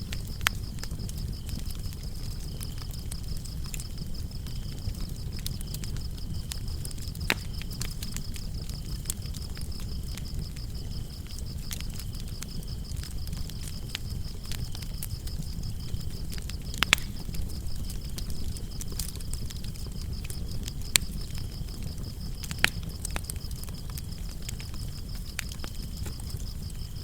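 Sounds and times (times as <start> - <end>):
crickets chirping: 0.0 - 27.0
lower-pitched cricket chirping: 0.0 - 27.0
wood fire crackling: 0.0 - 27.0.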